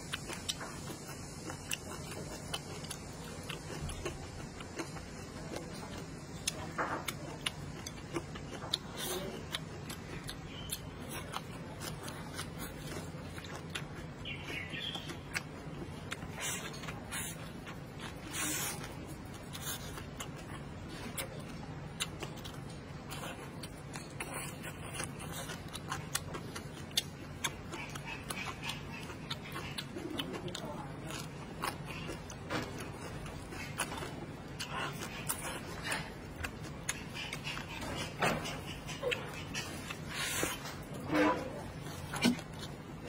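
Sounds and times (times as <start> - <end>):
person chewing and crunching food: 0.0 - 43.0.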